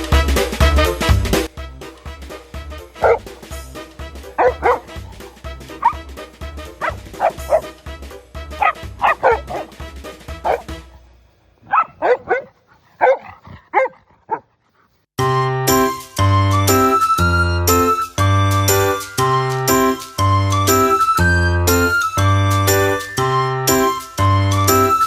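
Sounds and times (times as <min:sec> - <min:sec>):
dog barking and yipping: 0:03.0 - 0:03.5, 0:04.4 - 0:06.0, 0:06.8 - 0:07.7, 0:08.6 - 0:09.8, 0:10.4 - 0:10.7, 0:11.6 - 0:14.5.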